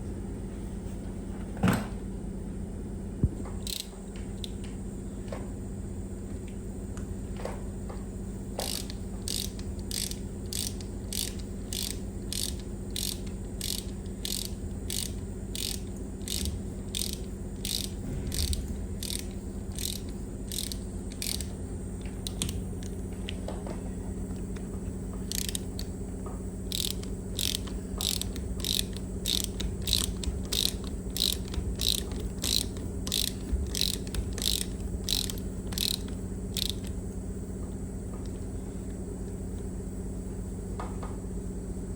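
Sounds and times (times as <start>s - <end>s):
ratchet wrench clicking: 3.6s - 4.5s, 8.6s - 21.6s, 22.2s - 23.0s, 25.2s - 26.0s, 26.7s - 37.0s
low hum: 8.2s - 40.6s.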